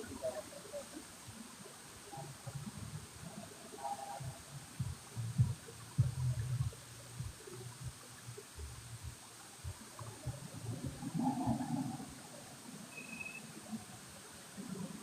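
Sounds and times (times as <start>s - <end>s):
low thuds: 4.2s - 7.4s.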